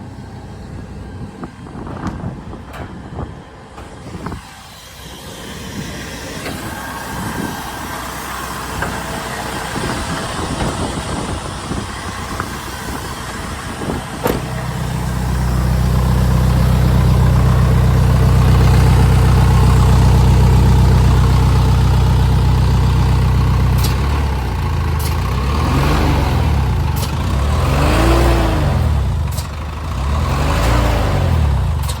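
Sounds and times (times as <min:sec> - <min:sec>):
diesel truck engine revving: 0:00.0 - 0:32.0.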